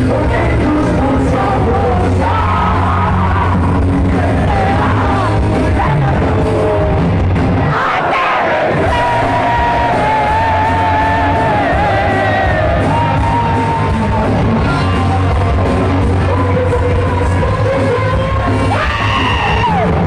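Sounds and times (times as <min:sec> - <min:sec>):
heavy metal band playing: 0:00.0 - 0:20.0.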